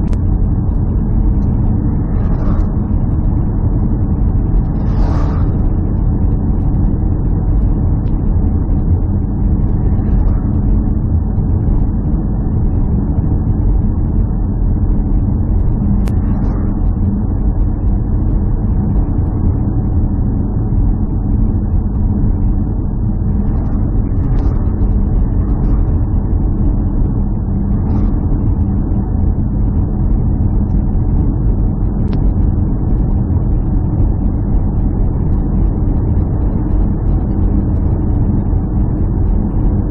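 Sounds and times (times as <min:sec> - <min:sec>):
engine running with low rumble: 0:00.0 - 0:39.9.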